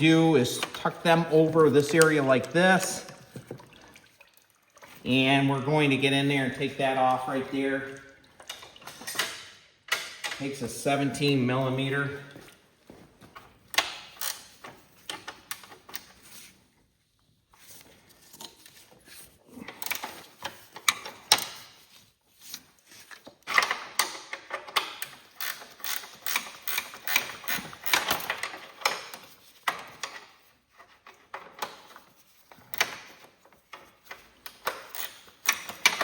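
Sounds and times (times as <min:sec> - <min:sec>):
ratchet wrench clicking: 0:25.3 - 0:28.1.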